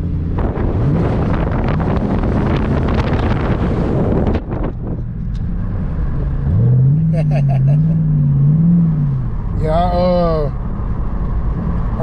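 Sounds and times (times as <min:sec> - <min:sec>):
car engine running: 0:00.0 - 0:12.0
wind buffeting microphone: 0:00.4 - 0:05.4.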